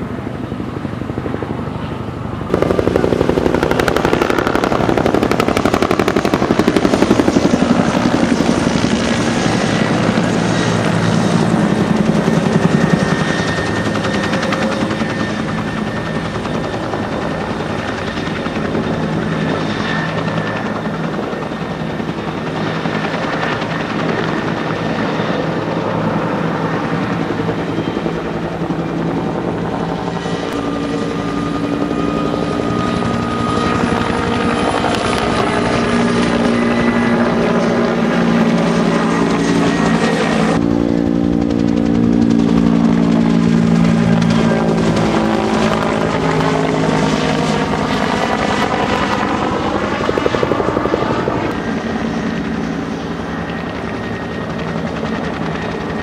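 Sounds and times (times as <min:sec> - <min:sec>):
helicopter rotor blades chopping: 0:00.0 - 0:56.0
turbine engine: 0:00.0 - 0:56.0.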